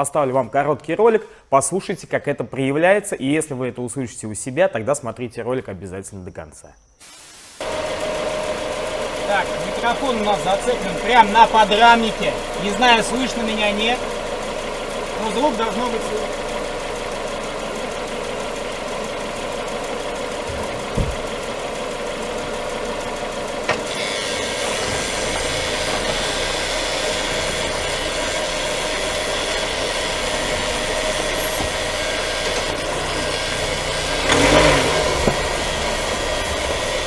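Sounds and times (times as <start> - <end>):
car running gear noise: 7.6 - 37.0
steady high squeal: 7.6 - 37.0
short knocks: 20.4 - 21.5.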